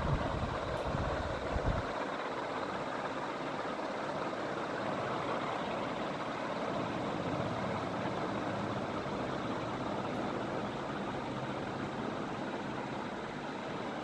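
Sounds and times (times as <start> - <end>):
ceiling fan running: 0.0 - 14.0.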